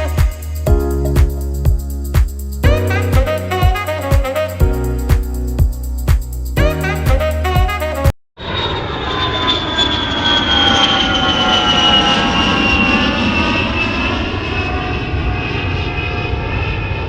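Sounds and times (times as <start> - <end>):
airplane engines running: 8.4 - 17.0.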